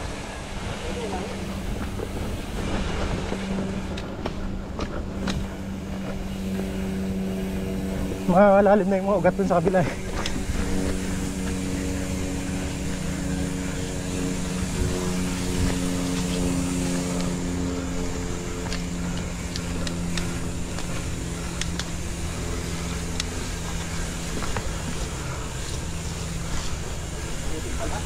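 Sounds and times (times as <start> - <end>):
bicycle freehub buzzing: 0.0 - 28.0
tyres rumbling on trail: 0.0 - 28.0
wind: 0.0 - 28.0
sharp clicks and ticks: 18.6 - 22.0, 22.9 - 23.4.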